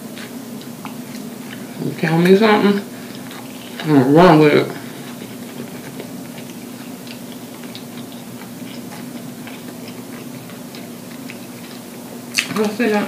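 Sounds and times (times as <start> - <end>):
steady low hum: 0.0 - 13.0
wet chewing clicks: 5.1 - 12.8.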